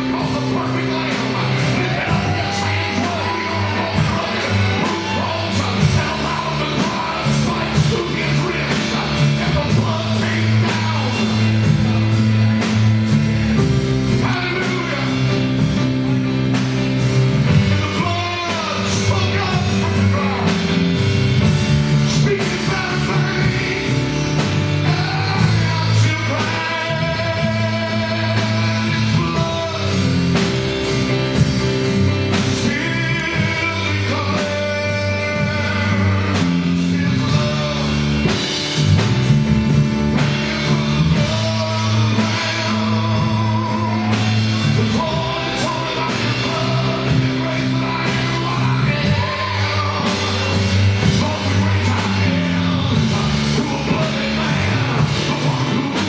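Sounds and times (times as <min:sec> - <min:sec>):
drum kit: 0:00.0 - 0:56.0
electric bass: 0:00.0 - 0:56.0
piano: 0:00.0 - 0:56.0.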